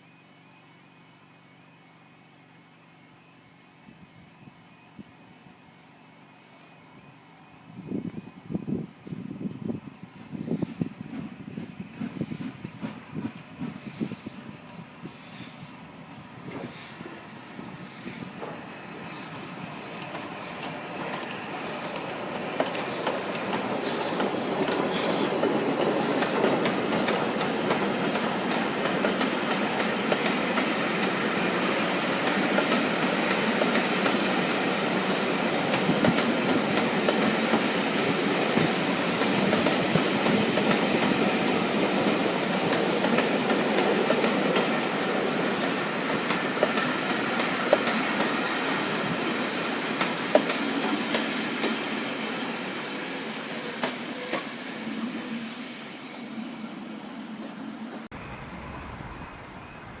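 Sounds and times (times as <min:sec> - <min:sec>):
train wheels clattering over rails: 0:10.4 - 0:14.5, 0:16.4 - 0:54.6.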